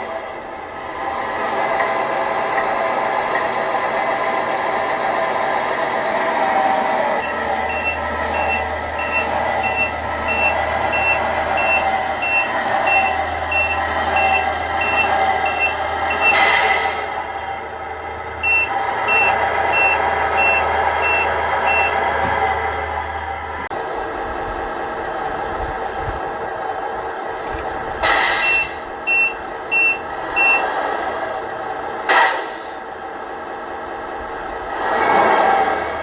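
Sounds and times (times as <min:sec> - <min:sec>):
idling engine hum: 0:04.7 - 0:36.0
reversing beeper: 0:07.2 - 0:17.1, 0:18.4 - 0:22.1, 0:28.4 - 0:30.7.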